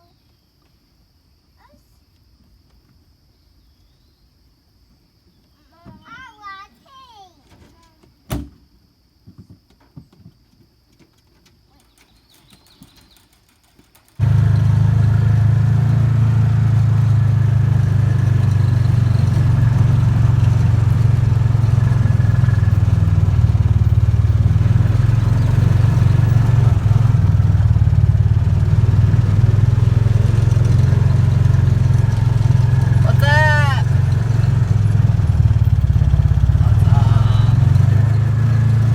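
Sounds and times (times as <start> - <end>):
vehicle engine droning: 14.2 - 38.9.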